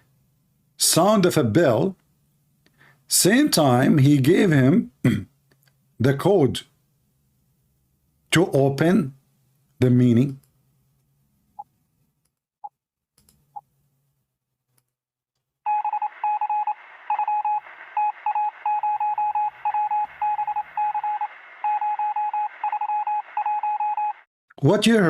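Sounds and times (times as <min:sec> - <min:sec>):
morse code beeping tone: 0:15.7 - 0:24.3
radio hiss: 0:16.1 - 0:23.4.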